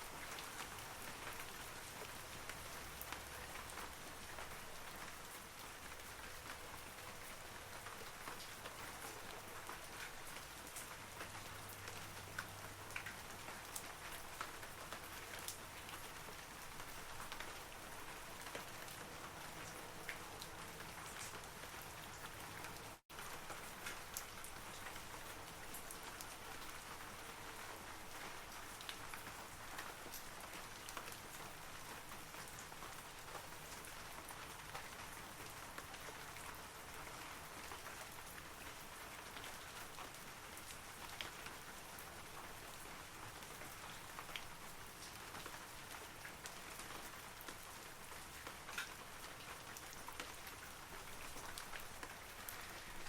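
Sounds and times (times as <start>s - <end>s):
rain pattering on trees: 0.0s - 53.0s.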